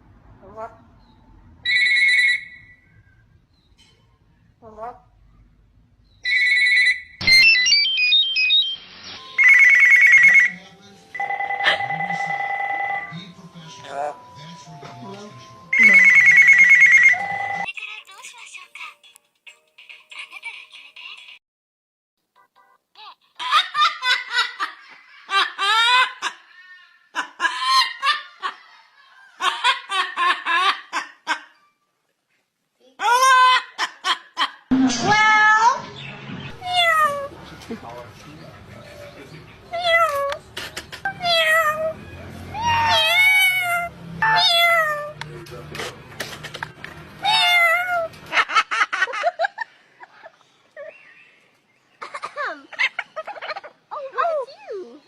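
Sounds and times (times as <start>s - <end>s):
ringtone beeping tune: 6.3s - 10.5s, 15.7s - 17.7s
high-pitched laughing: 52.0s - 54.8s.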